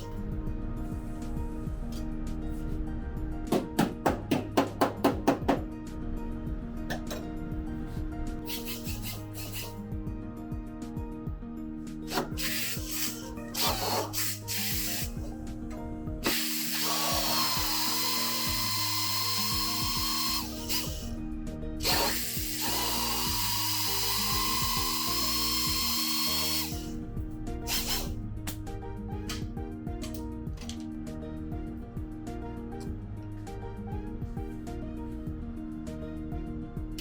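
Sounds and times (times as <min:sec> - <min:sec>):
power drill whining: 0:12.1 - 0:15.2, 0:16.2 - 0:21.1, 0:21.8 - 0:27.0, 0:27.7 - 0:28.1.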